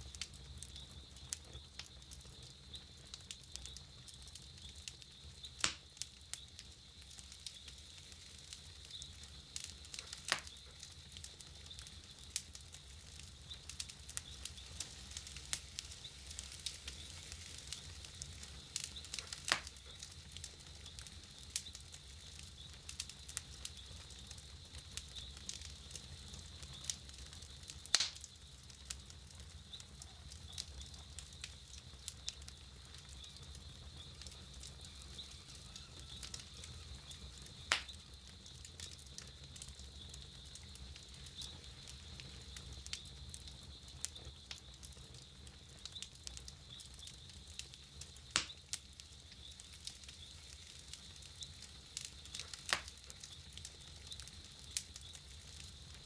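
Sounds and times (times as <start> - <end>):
campfire crackling: 0.0 - 56.0
loud fire pops: 0.0 - 56.0.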